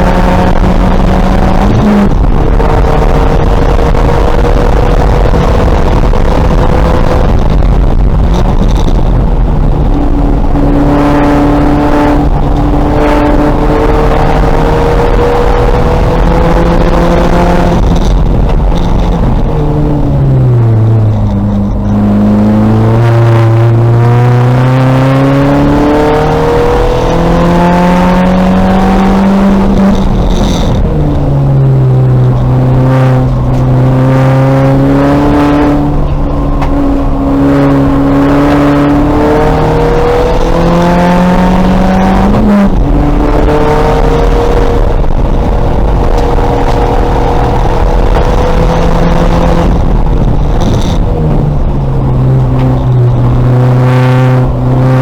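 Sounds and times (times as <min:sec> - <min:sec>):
race car engine accelerating: 0:00.0 - 0:55.0.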